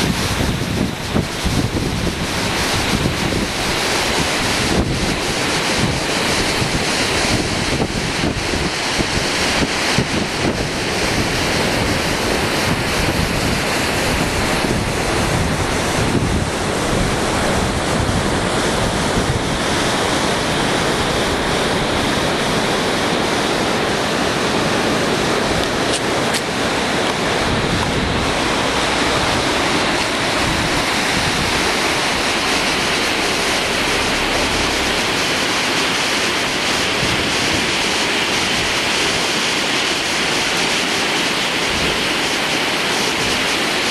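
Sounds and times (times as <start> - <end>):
rushing flood water: 0.0 - 43.9
wind buffeting microphone: 0.0 - 43.9.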